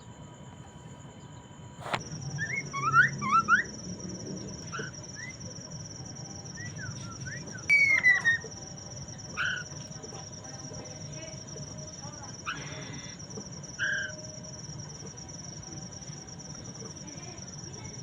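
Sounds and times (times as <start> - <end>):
high-pitched insect buzz: 1.8 - 18.0
bird singing whistled notes: 2.1 - 9.8, 13.7 - 14.6.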